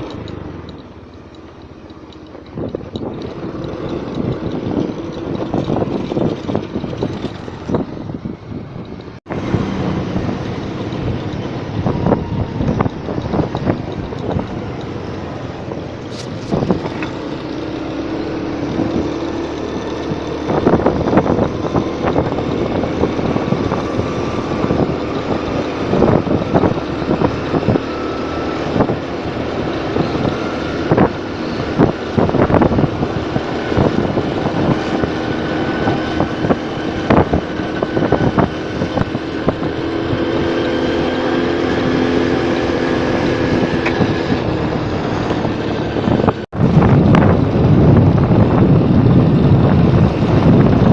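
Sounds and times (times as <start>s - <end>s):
motorcycle engine hum: 0.0s - 50.9s
wind and road noise: 0.0s - 50.9s.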